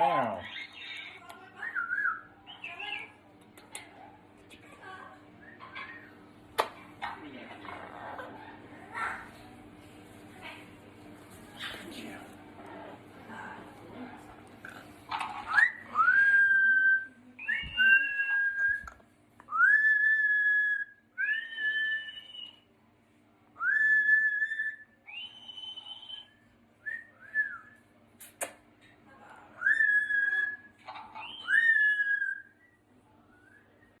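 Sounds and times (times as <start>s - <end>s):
parrot whistling: 15.5s - 18.9s, 19.5s - 22.6s, 23.6s - 27.7s, 29.6s - 32.8s
sharp click: 28.2s - 28.6s.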